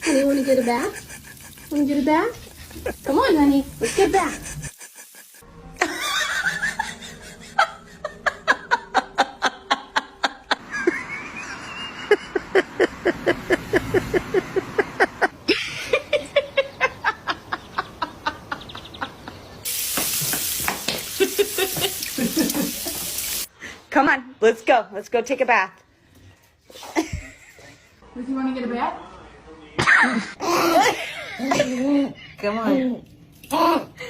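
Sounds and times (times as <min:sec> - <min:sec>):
person making pulsed laugh-like sounds: 0:00.0 - 0:01.8, 0:03.8 - 0:19.5
running water from tap: 0:00.0 - 0:05.4, 0:19.6 - 0:23.5.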